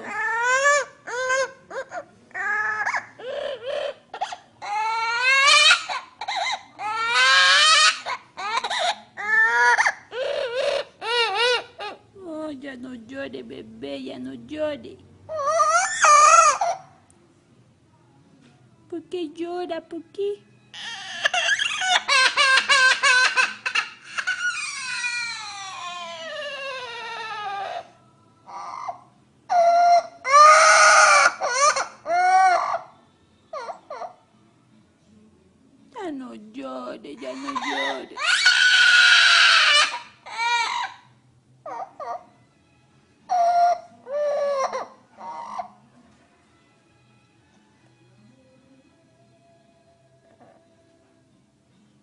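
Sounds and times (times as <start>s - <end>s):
parrot mimicking baby crying: 0.0s - 12.1s, 15.3s - 17.0s, 20.7s - 34.3s, 37.2s - 42.4s, 43.3s - 45.9s.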